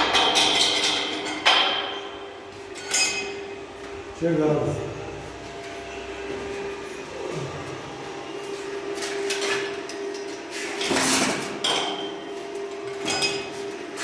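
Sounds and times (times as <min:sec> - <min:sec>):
steady hum: 0:00.0 - 0:14.0
metal clanks and scrapes: 0:09.0 - 0:12.1.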